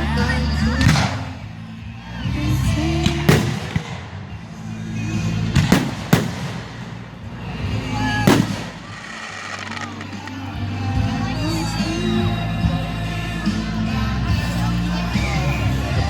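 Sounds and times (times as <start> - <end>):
background music: 0.0 - 16.0
fireworks booming: 3.1 - 4.4, 5.4 - 10.7.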